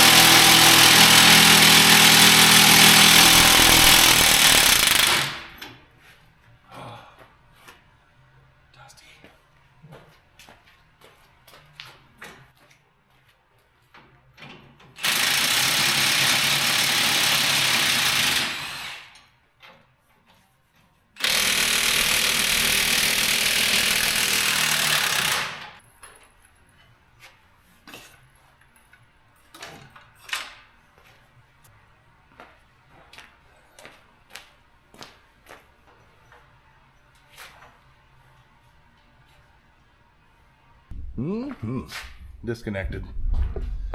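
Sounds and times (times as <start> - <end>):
impact wrench running: 0.0 - 5.6, 15.0 - 19.2, 21.2 - 25.8.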